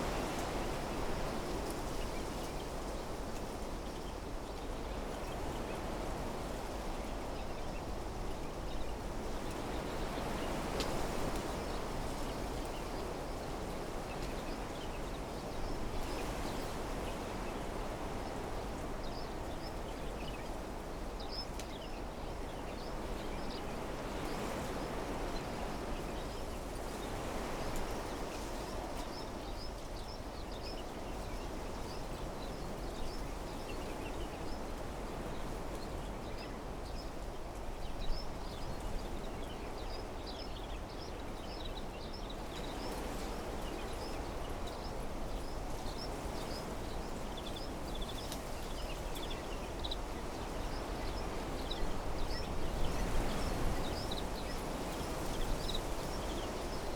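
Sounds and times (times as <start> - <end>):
wind blowing through trees: 0.0 - 56.9
small birds chirping: 37.8 - 56.9.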